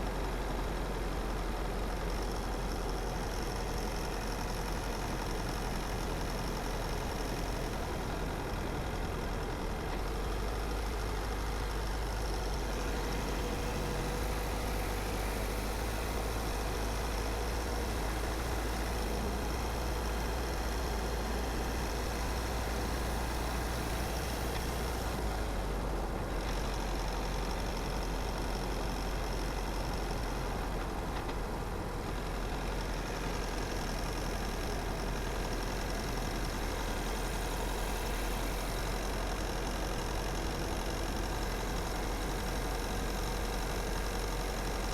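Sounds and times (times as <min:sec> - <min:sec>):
car engine and road rumble: 0:00.0 - 0:44.9.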